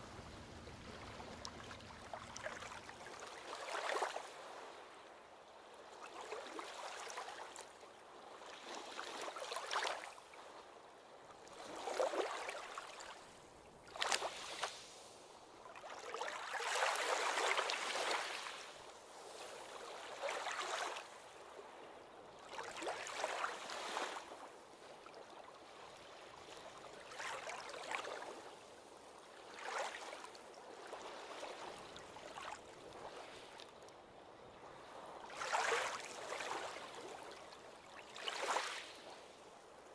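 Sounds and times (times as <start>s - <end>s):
small waves breaking on shore: 0.0s - 39.9s.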